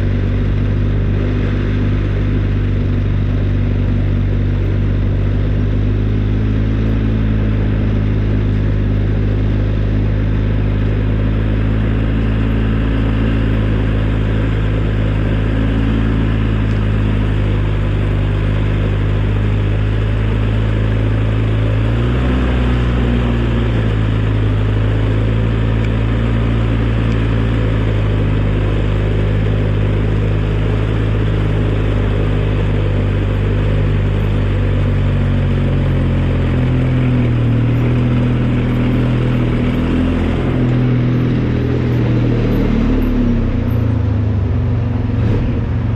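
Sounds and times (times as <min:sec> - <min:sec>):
snowplow engine running: 0:00.0 - 0:45.9.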